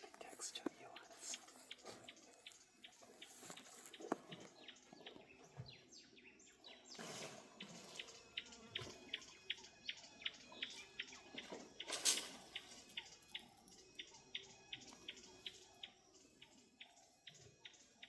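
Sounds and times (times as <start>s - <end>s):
faint outdoor hiss: 0.0s - 4.7s.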